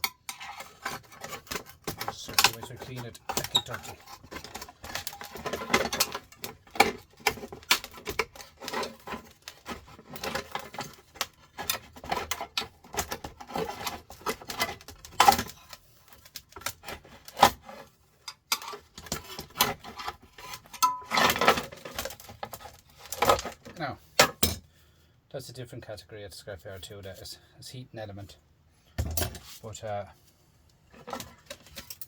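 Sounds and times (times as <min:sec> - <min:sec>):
screwdriver scraping metal parts: 0:00.0 - 0:24.6.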